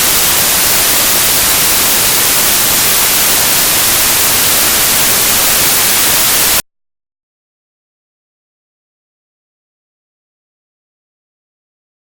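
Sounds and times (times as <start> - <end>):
loud static hiss: 0.0 - 6.6.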